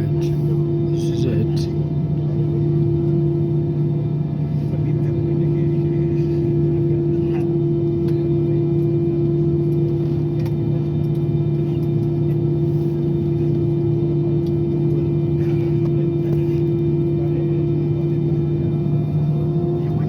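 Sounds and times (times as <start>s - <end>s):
jet engines droning in cabin: 0.0s - 20.0s.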